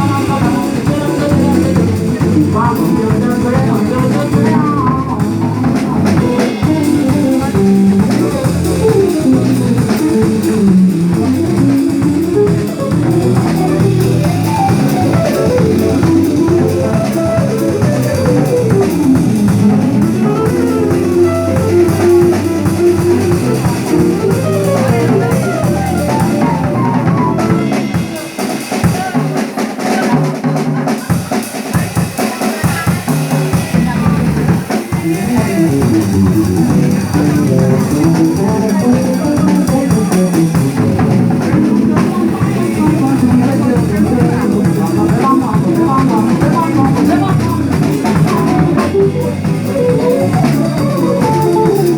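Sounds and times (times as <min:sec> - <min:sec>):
melodic guitar: 0:00.0 - 0:28.3, 0:35.1 - 0:51.9
drum kit: 0:00.0 - 0:51.9.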